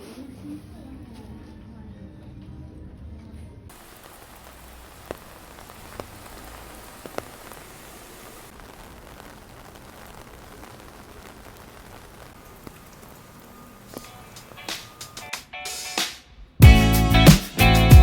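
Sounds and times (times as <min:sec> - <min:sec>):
batter sizzling in oil: 0:03.7 - 0:15.3.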